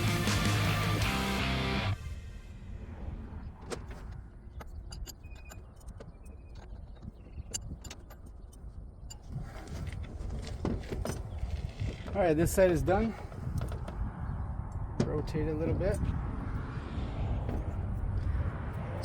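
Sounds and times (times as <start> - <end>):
metallic clicks of tools: 4.6 - 6.8.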